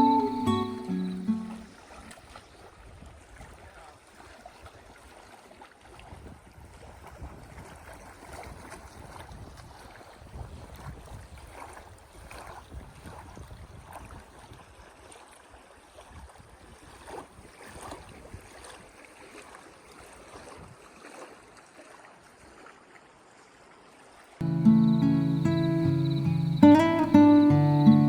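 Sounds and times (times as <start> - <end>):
wind rumbling on microphone: 6.0 - 14.6.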